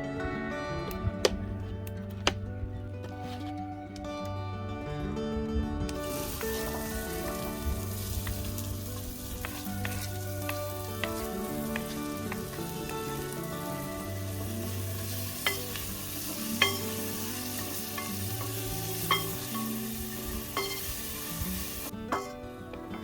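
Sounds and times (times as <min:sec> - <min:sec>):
background music: 0:00.0 - 0:23.0
food sizzling in a pot: 0:06.0 - 0:22.4.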